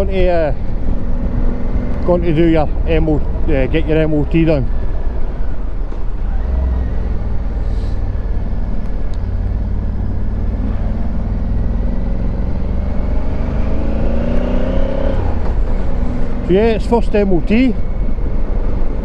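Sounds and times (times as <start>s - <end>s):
road rumble: 0.0s - 19.0s
motorcycle engine running: 0.6s - 12.8s.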